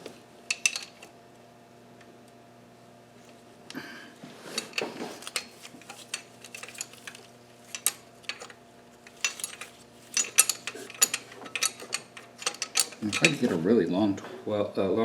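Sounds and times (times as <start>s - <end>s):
metal tools clinking on engine parts: 0.5s - 1.1s, 4.5s - 13.6s.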